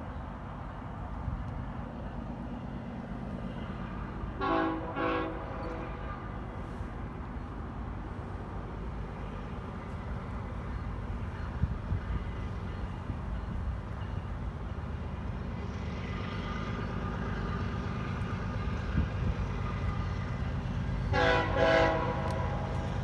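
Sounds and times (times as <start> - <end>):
train rumbling: 0.0 - 23.0
train horn blasts: 4.4 - 6.9, 21.0 - 23.0.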